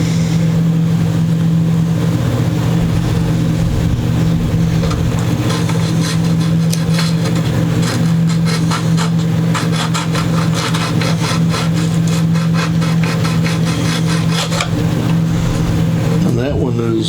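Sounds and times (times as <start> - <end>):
low hum: 0.0 - 9.6, 13.2 - 17.0
file rasping on guitar fret: 4.8 - 16.0.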